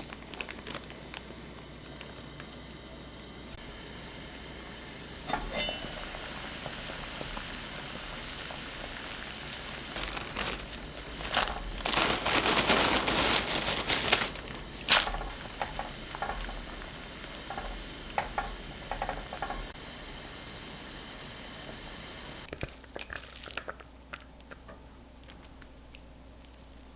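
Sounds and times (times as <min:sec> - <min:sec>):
food sizzling in a pan: 0:03.8 - 0:11.8
dense crackling: 0:08.8 - 0:19.8.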